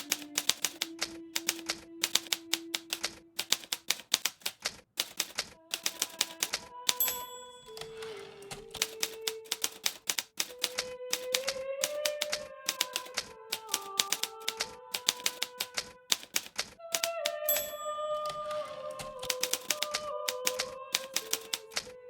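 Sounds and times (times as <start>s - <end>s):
typewriter keys clicking: 0.0s - 22.0s.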